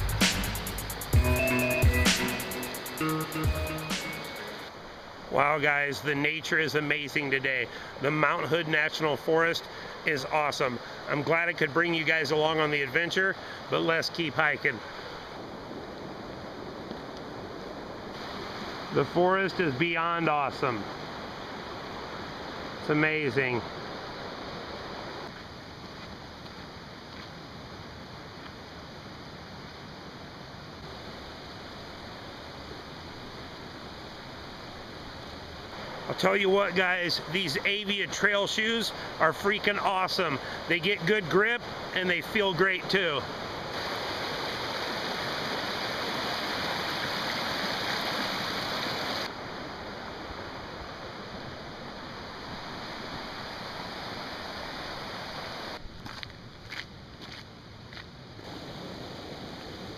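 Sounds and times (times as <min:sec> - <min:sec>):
mountain stream rushing: 0:00.0 - 0:57.4, 0:58.3 - 0:59.9.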